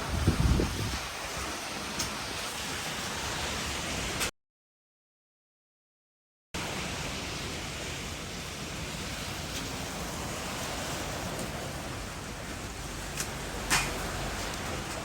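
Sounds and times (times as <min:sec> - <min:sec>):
hail and rain falling heavily: 0:07.3 - 0:15.0.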